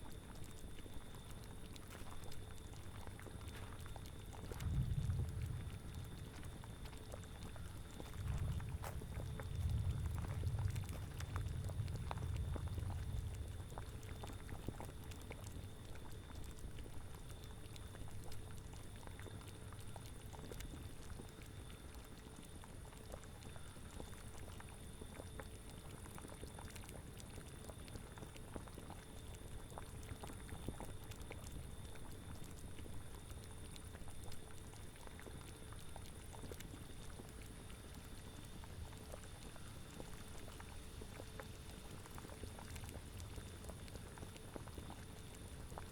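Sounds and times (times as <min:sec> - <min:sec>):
liquid bubbling in a cauldron: 0:00.0 - 0:45.9
low wind rumble: 0:04.2 - 0:15.4.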